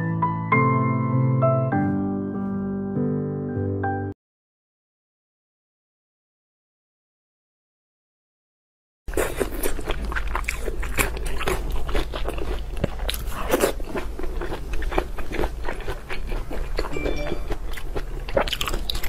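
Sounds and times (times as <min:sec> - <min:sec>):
wet chewing clicks and smacks: 0:09.2 - 0:19.0.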